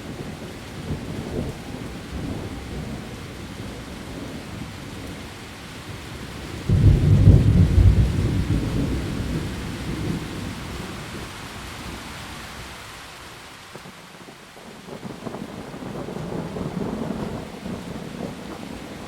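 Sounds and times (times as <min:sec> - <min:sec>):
heavy rain on leaves: 0:00.0 - 0:19.0
thunder rumbling: 0:06.3 - 0:11.2, 0:14.9 - 0:19.0.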